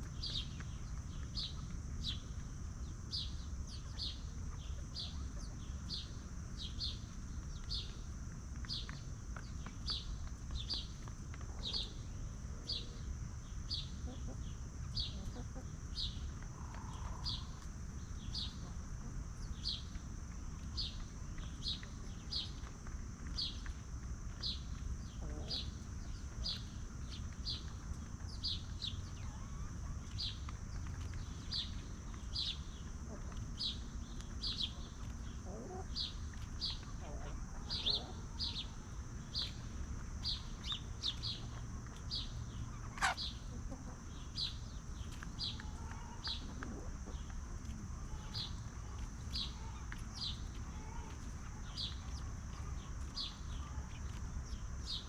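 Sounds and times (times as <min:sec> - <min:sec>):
small bird chirping: 0:24.3 - 0:47.4, 0:48.0 - 0:55.0.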